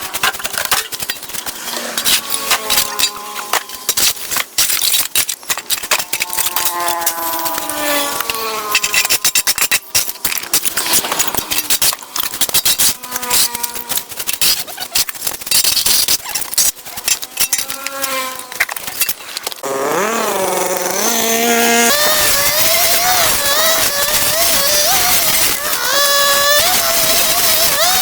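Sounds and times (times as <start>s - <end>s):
brush crackling as it is cut: 0.0s - 28.0s
small two-stroke engine whining: 1.5s - 4.4s, 5.8s - 14.8s, 19.6s - 28.0s.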